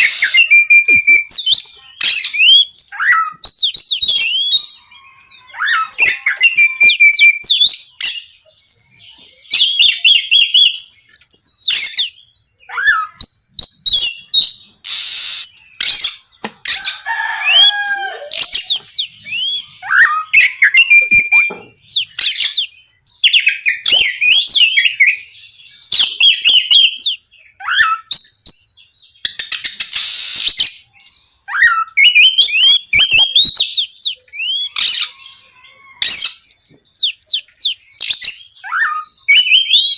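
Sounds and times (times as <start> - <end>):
bird singing whistled trills: 0.0 - 16.8, 17.5 - 39.9
bird harsh hissing burst: 14.8 - 15.5, 29.8 - 30.7.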